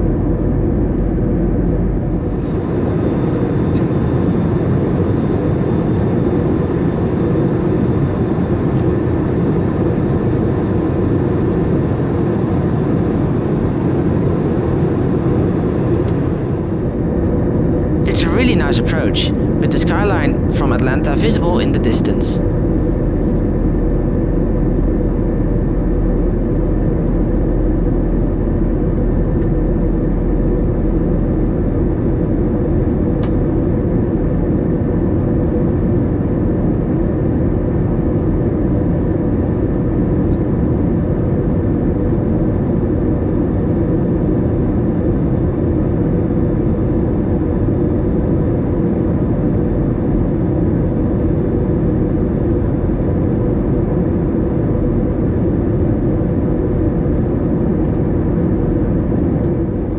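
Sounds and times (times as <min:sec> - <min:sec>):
airliner cabin drone: 0:00.0 - 0:23.4, 0:39.4 - 0:59.9
faint steady whine: 0:02.0 - 0:23.4.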